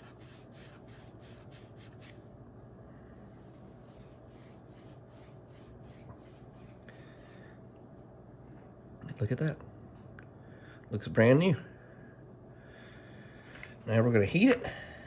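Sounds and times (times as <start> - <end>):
steel wool scratching: 0.0 - 2.2, 3.2 - 7.5.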